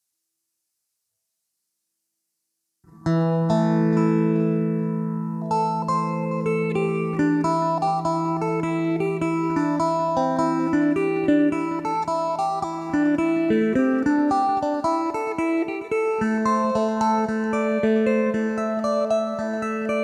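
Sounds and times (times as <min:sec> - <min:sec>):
electric lute picked melody: 0:02.9 - 0:20.0.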